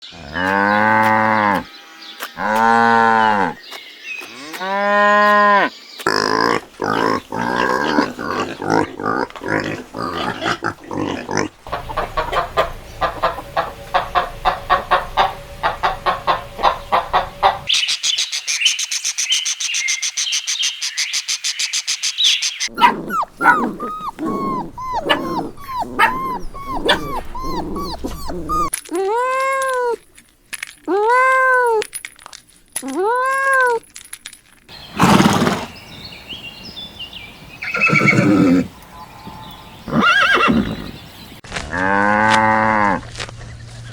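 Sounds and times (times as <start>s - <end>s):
animal calls: 4.3s - 17.8s, 22.6s - 30.0s, 37.6s - 42.0s.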